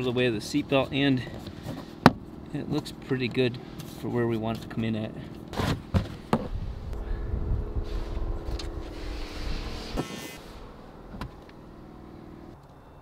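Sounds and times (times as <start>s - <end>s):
vehicle engine running: 6.5s - 12.6s.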